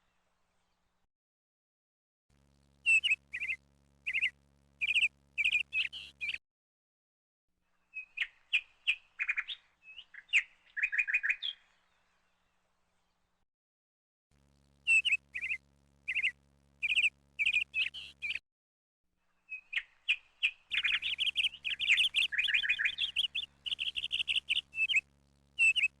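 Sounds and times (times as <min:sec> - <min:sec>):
songbird chirps and trills: 0:02.8 - 0:06.4, 0:07.7 - 0:13.4, 0:14.8 - 0:18.4, 0:19.2 - 0:26.0.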